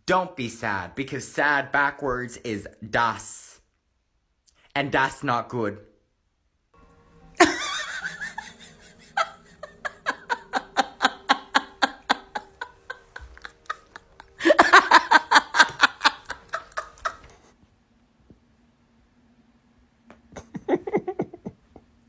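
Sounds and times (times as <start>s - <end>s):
person laughing hard: 7.4s - 17.5s, 20.3s - 21.8s.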